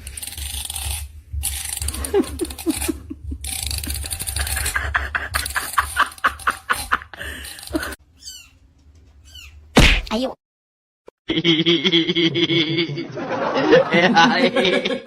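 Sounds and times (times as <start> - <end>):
person laughing: 1.9 - 8.0, 11.3 - 15.0.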